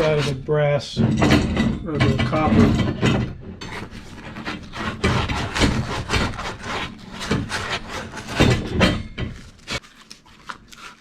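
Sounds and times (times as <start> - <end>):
sandpaper scraping metal: 0.0 - 0.5, 3.6 - 9.8.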